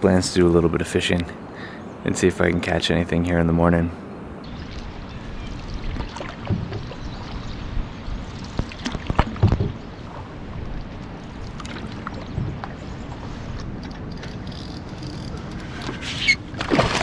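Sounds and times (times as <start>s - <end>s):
water lapping against canoe: 5.4s - 17.0s.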